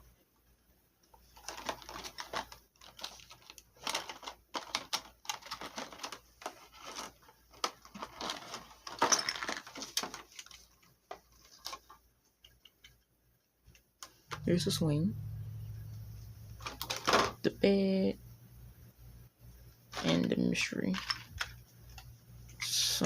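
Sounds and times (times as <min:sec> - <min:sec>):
plastic packaging crinkling: 0:01.2 - 0:12.0, 0:16.6 - 0:17.4.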